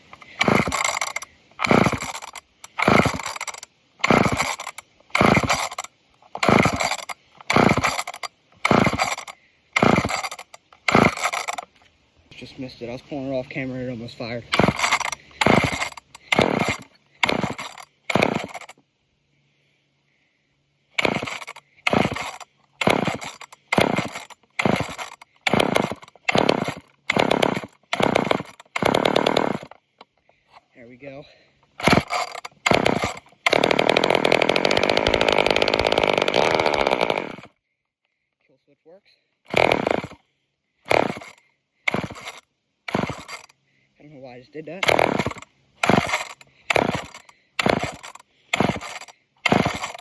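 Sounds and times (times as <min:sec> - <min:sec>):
chainsaw starter rope pulls: 0:00.0 - 0:11.9, 0:14.5 - 0:18.8, 0:21.0 - 0:37.6, 0:39.5 - 0:40.2, 0:40.8 - 0:43.6, 0:44.6 - 0:50.0.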